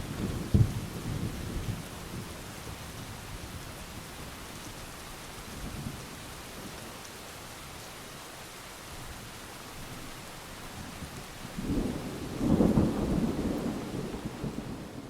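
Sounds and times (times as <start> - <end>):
heavy rain: 0.0 - 15.0
thunder rumble: 11.6 - 15.0.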